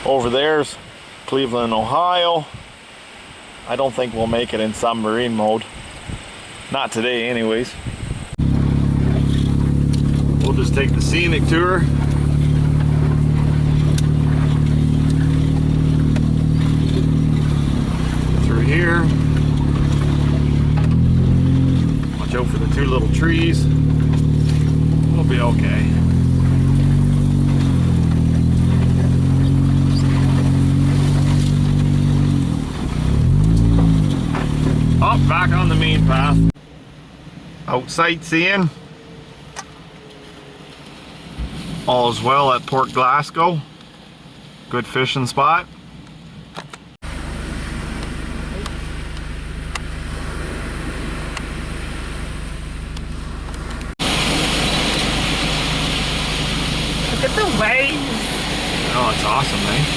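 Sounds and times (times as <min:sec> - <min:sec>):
road and cabin noise: 0:00.0 - 0:59.9
car engine running: 0:07.3 - 0:43.2, 0:45.8 - 0:59.9
steady rushing noise: 0:46.3 - 0:59.9.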